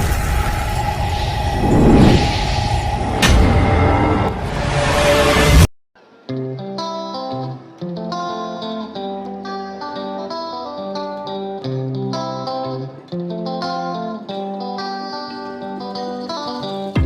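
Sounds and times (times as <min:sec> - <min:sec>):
guitar instrumental music: 0:06.0 - 0:17.0.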